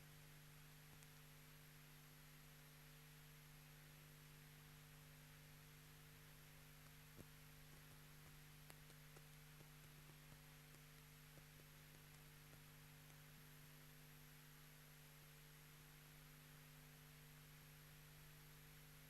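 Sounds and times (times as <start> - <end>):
faint electrical hum: 0.0 - 19.0
faint ticks: 0.9 - 1.3, 6.3 - 13.9.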